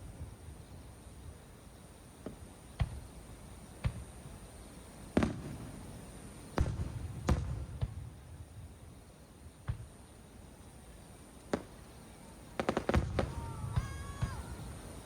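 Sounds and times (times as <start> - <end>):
firework shells bursting: 5.1 - 8.2, 12.6 - 15.0.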